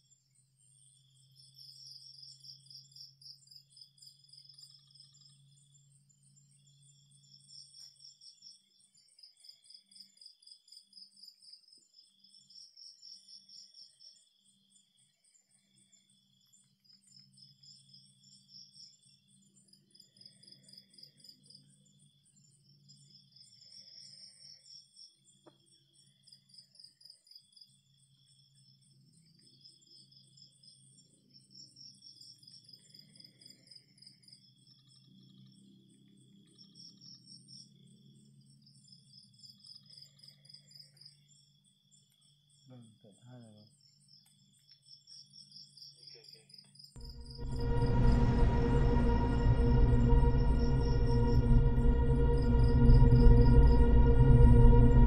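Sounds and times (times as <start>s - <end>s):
crickets chirping: 0.0s - 55.0s
low steady hum: 47.0s - 55.0s.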